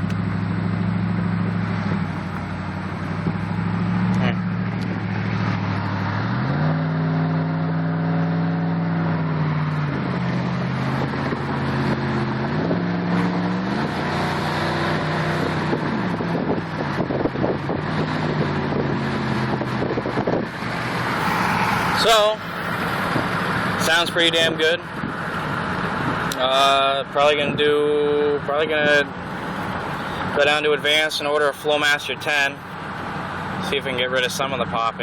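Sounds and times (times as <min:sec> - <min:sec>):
exhaust popping and crackling: 0:00.0 - 0:26.7
unmuffled engine revving: 0:00.0 - 0:35.0.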